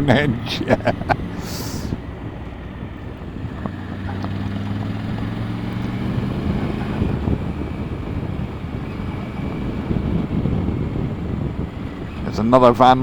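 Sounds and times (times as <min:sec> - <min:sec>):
motorcycle engine cruising: 0:00.0 - 0:13.0
wind noise on microphone: 0:00.0 - 0:13.0.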